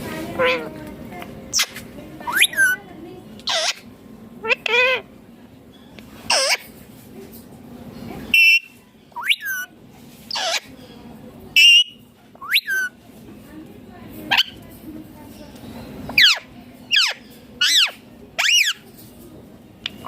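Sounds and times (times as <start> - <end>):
parrot calling: 0.4 - 0.7, 1.5 - 2.8, 3.4 - 5.1, 6.2 - 6.7, 8.3 - 9.7, 10.3 - 10.7, 11.5 - 13.0, 14.3 - 14.6, 16.1 - 18.8
parrot harsh buzzy call: 3.5 - 5.1, 6.3 - 6.7.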